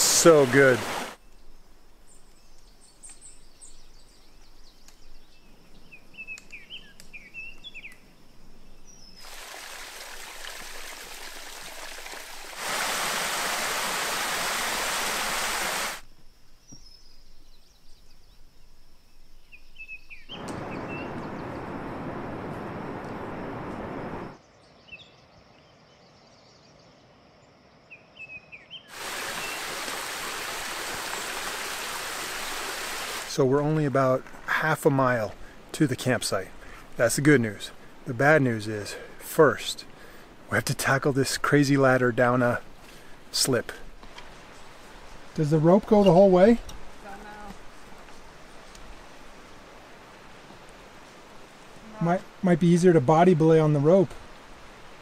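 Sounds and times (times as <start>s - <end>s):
rushing water: 0.0s - 1.2s, 9.1s - 16.0s, 20.4s - 24.4s, 28.9s - 55.0s.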